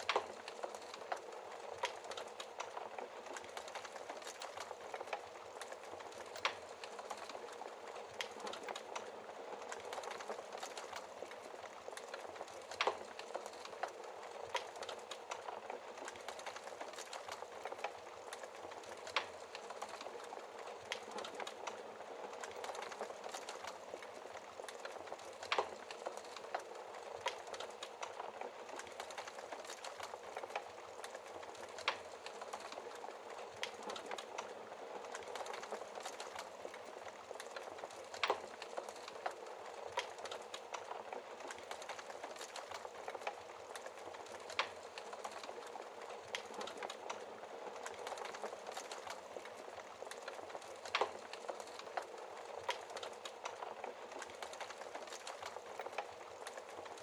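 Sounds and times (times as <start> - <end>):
fire snapping and popping: 0.0 - 57.0.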